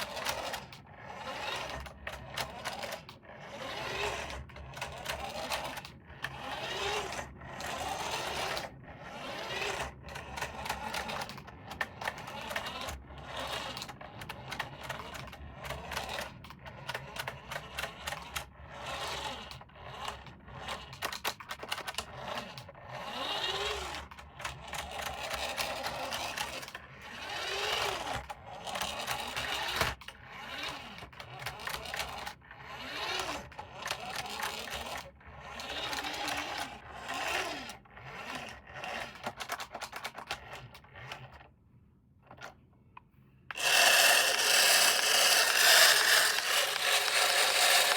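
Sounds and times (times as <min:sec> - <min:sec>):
toy car electric motor whirring: 0:00.0 - 0:41.5, 0:43.5 - 0:47.9
plastic clicks and rattles: 0:10.4 - 0:12.7, 0:42.2 - 0:47.9.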